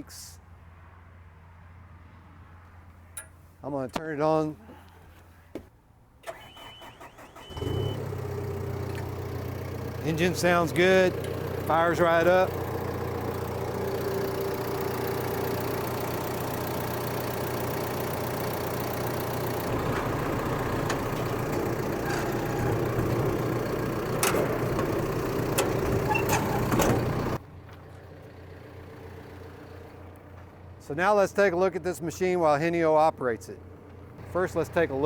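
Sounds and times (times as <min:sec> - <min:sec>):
diesel engine idling: 0:06.3 - 0:32.5, 0:33.6 - 0:35.0.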